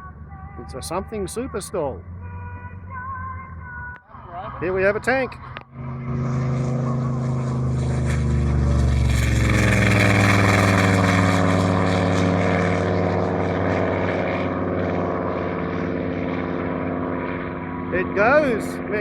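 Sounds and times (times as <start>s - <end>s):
tank engine revving: 4.6s - 19.0s.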